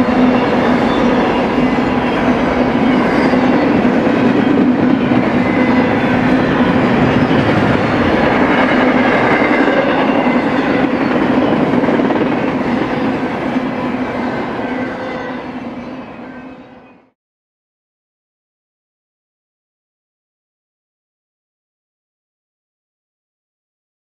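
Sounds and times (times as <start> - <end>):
freight train rolling past: 0.0 - 17.0.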